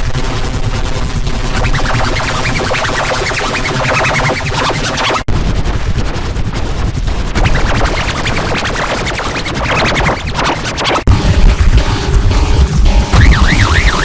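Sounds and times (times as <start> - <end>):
distorted stuttering scratching audio: 1.5 - 5.3, 7.1 - 14.0
low rumble: 5.3 - 14.0.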